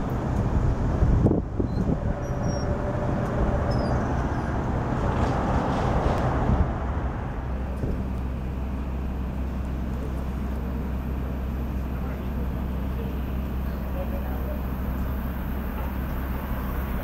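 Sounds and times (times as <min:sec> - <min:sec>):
wind noise on microphone: 0:00.0 - 0:08.1
electric train rumble: 0:00.0 - 0:17.0.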